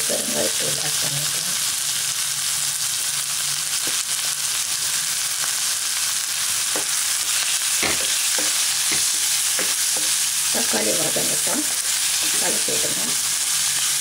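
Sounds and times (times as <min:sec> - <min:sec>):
food sizzling in oil: 0:00.0 - 0:14.0
spatula knocking on pan: 0:06.7 - 0:07.0, 0:07.8 - 0:10.2.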